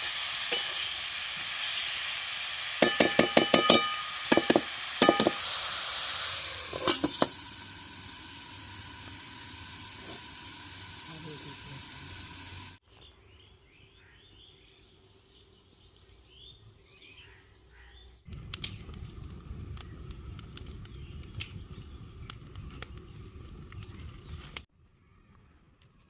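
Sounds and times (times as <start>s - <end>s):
small birds chirping: 12.8s - 18.9s, 19.6s - 26.0s
low rumbling noise: 18.3s - 24.4s.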